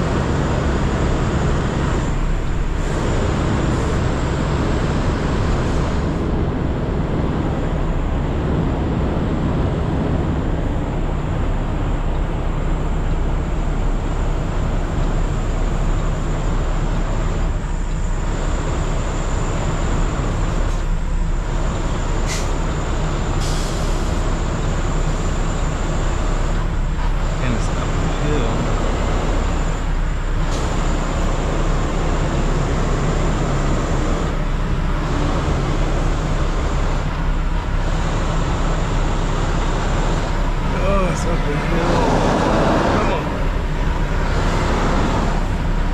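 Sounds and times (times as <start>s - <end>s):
truck diesel engine running: 0.0s - 45.9s
brief air hisses: 23.4s - 24.2s.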